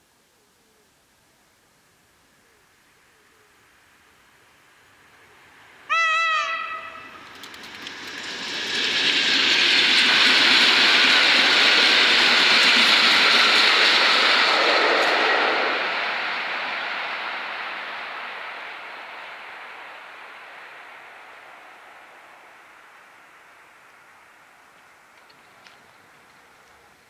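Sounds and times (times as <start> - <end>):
train passing: 2.7 - 27.0
train horn blast: 5.9 - 7.3.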